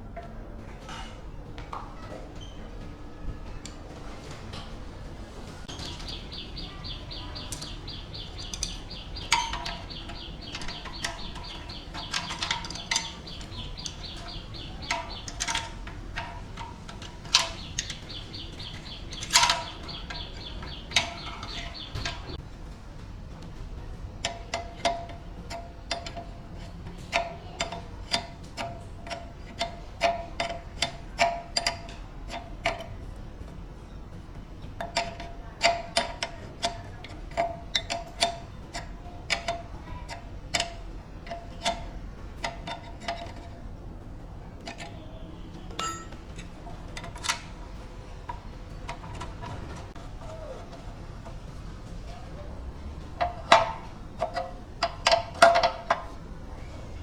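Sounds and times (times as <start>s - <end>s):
ringing metal-on-metal strikes: 44.8s - 46.7s.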